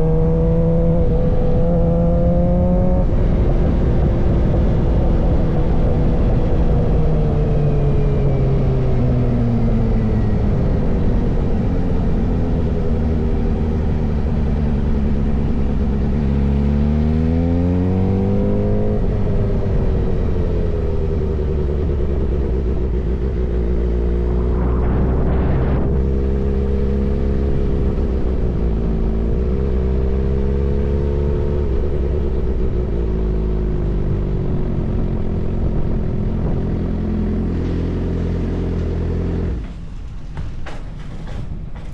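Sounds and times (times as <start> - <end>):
motorcycle engine revving: 11.1 - 39.7
brief rushing noise: 23.4 - 27.8.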